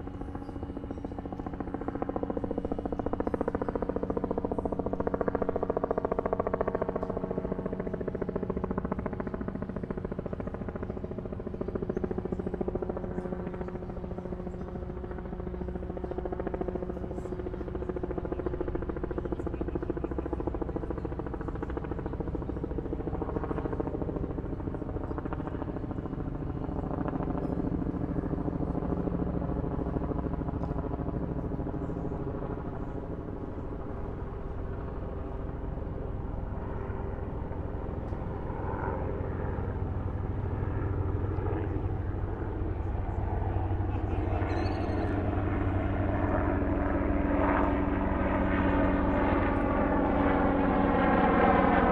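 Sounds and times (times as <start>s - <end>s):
helicopter droning overhead: 0.0s - 51.9s.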